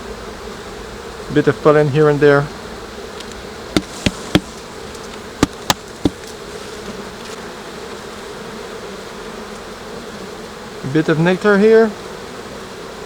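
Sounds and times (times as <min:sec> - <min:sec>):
bees buzzing: 0:00.5 - 0:13.0
sharp clicks or knocks: 0:03.8 - 0:04.6, 0:05.4 - 0:06.3.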